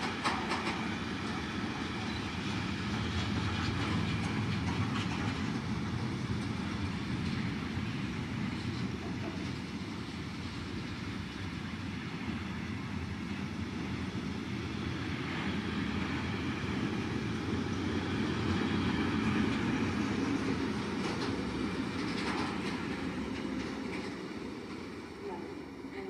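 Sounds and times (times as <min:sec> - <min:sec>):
train wheels clacking over rails: 0:00.0 - 0:12.4, 0:13.0 - 0:26.0.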